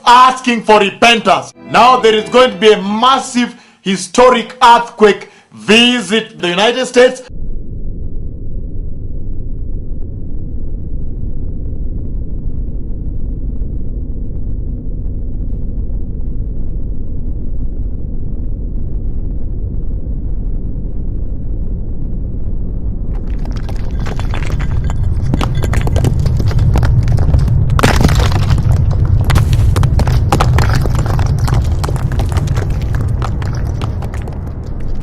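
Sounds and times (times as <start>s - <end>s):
deep earthquake rumble: 7.3s - 35.0s
objects rattling and breaking: 23.1s - 35.0s.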